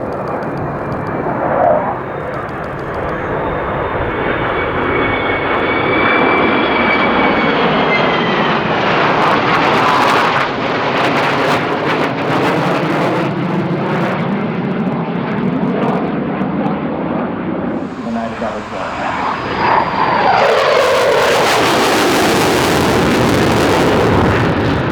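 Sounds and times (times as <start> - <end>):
high jet whine sliding down: 0.0 - 10.6, 17.8 - 24.4
jet aircraft roar: 0.0 - 24.9.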